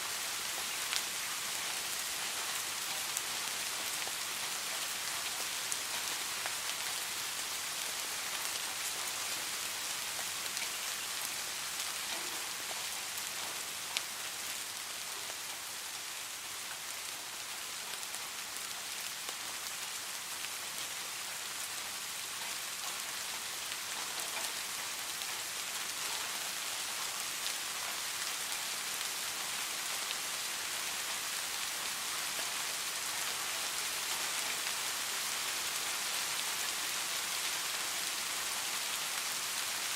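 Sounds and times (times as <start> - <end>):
rain falling: 0.0 - 39.9
raindrop ticks: 12.0 - 14.1.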